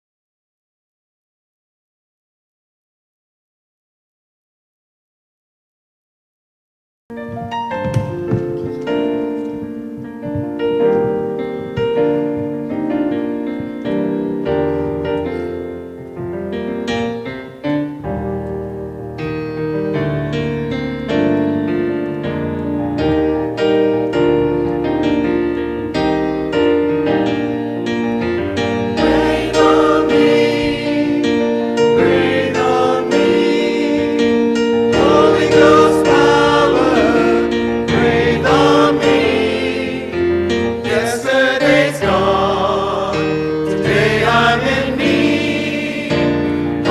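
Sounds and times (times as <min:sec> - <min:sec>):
keyboard chords: 0:07.1 - 0:46.9
choir singing: 0:28.8 - 0:46.9.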